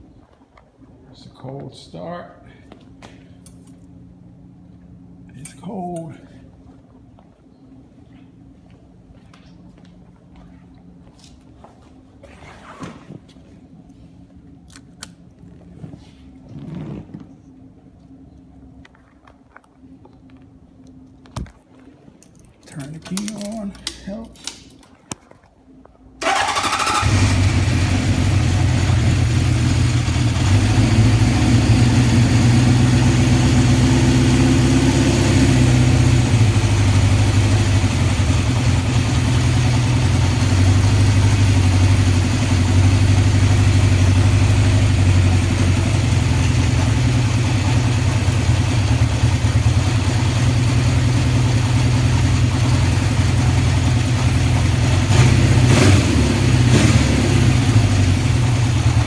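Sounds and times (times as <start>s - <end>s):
motorcycle engine starting and idling: 26.2s - 59.0s.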